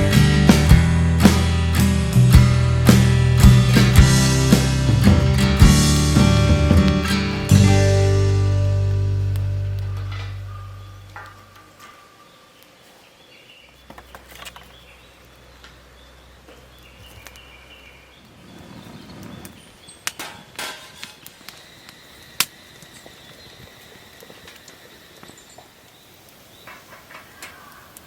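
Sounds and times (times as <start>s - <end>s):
sharp crack: 0.0s - 11.6s.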